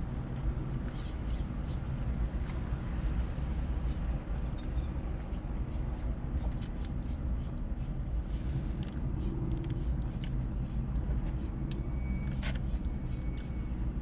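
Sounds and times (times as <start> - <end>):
person chewing food: 5.2 - 13.5.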